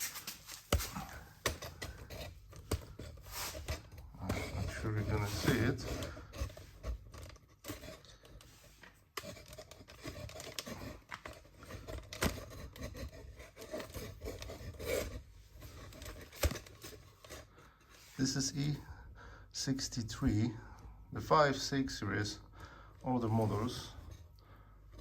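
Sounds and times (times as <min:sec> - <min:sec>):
blade sawing through foam: 0:01.0 - 0:06.8.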